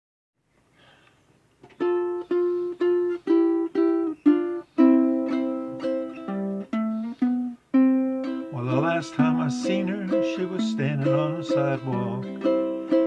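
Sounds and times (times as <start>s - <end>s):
ukulele chords: 1.6s - 13.0s.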